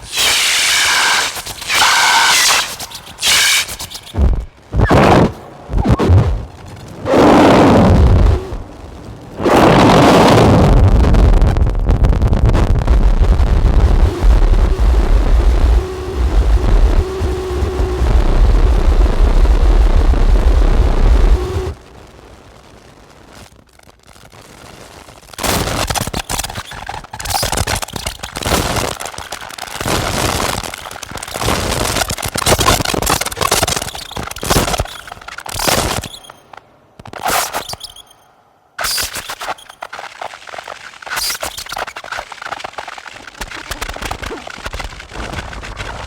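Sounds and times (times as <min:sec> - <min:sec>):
crackling distorted noise bursts: 0:00.0 - 0:46.0
distorted bass drone: 0:11.8 - 0:21.8.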